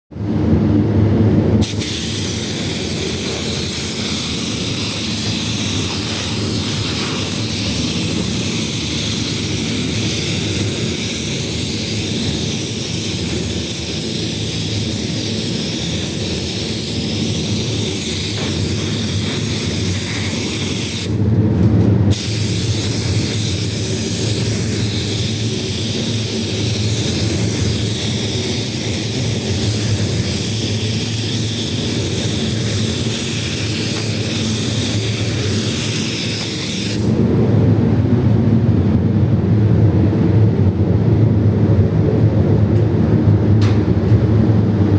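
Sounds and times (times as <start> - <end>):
paint spray gun hissing: 1.6 - 21.2, 22.1 - 37.2.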